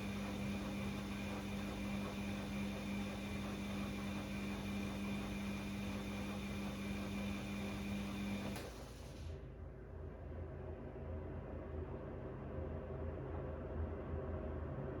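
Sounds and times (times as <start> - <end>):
washing machine motor hum: 0.0 - 9.2.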